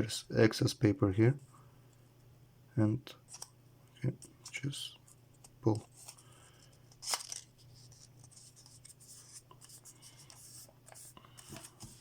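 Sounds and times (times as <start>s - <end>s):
paper rustling and crinkling: 5.6s - 12.0s.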